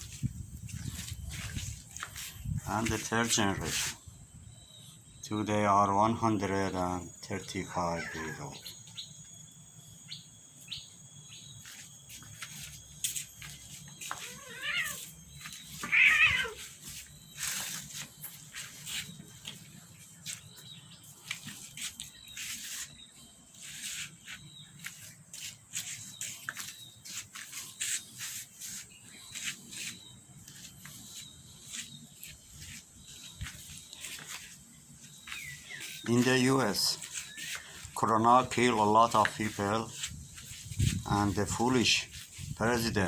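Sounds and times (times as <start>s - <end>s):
cat meowing: 8.0s - 8.6s, 14.1s - 15.1s, 15.8s - 16.6s.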